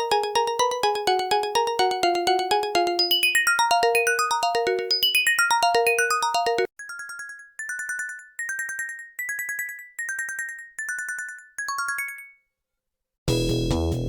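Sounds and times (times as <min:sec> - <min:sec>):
loud previous ringtone: 0:00.0 - 0:09.4
phone ringtone chime: 0:00.0 - 0:12.5.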